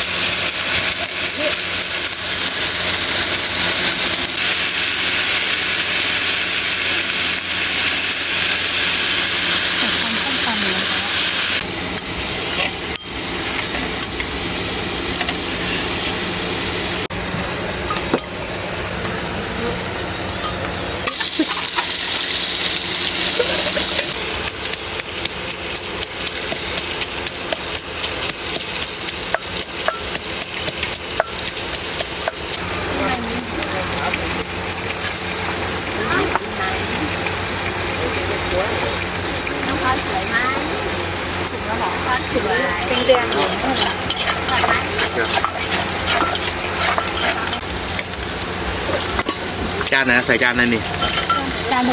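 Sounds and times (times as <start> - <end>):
food sizzling in a pan: 0.0 - 51.9
stirring in a pan: 21.1 - 51.9.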